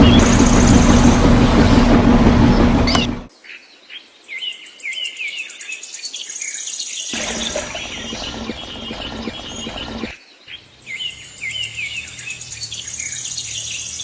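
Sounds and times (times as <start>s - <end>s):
birds chirping: 0.0s - 3.2s, 7.1s - 14.0s
loud mechanical hum: 0.0s - 3.3s, 7.2s - 10.1s.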